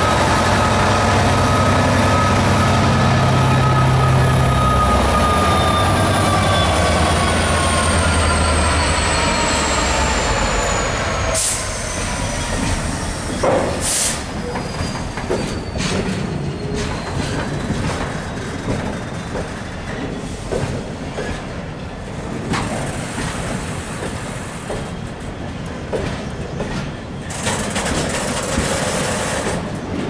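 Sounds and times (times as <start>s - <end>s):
train rumble: 0.0s - 30.0s
wheels clattering over rail joints: 25.9s - 30.0s.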